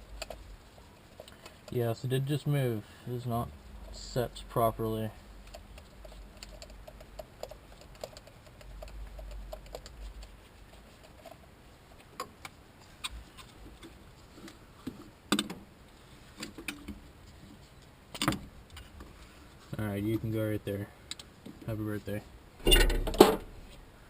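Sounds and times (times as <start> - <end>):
clinks of hand tools and parts: 22.6 - 23.5.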